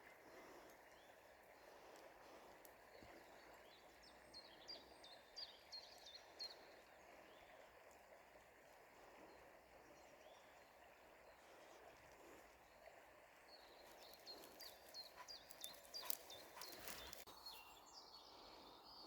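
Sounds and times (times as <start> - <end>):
faint outdoor background noise: 0.0 - 19.0
songbird chirping: 13.4 - 19.0.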